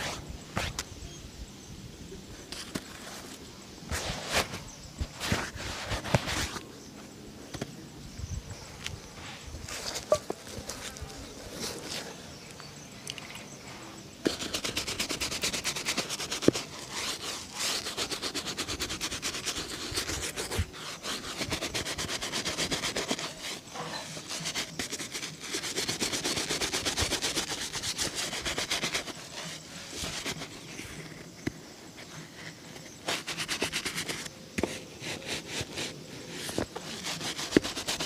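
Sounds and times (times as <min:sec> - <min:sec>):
cloth buffing a shoe: 0:14.2 - 0:38.0.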